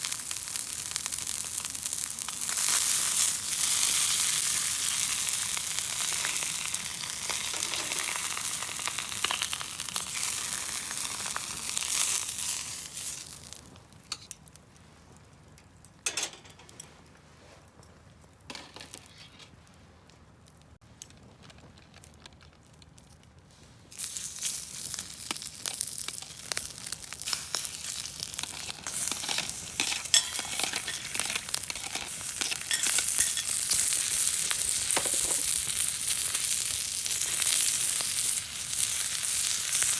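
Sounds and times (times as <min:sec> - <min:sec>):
food sizzling in a pan: 0:00.0 - 0:13.6, 0:24.0 - 0:39.9.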